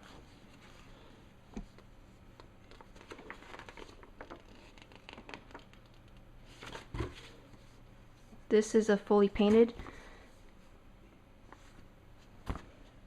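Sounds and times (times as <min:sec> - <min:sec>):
paper manual moved about: 0:02.6 - 0:05.8.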